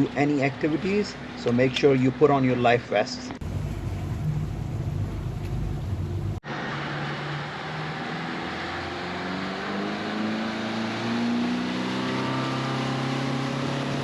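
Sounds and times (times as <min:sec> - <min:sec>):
motorboat engine running: 0:03.4 - 0:06.4.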